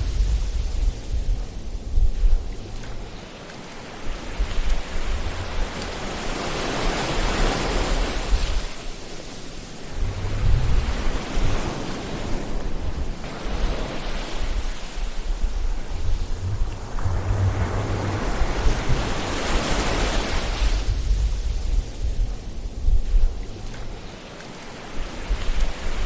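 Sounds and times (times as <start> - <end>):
ocean waves washing in: 0.0 - 26.0
low rumble: 9.8 - 11.7, 14.4 - 23.9.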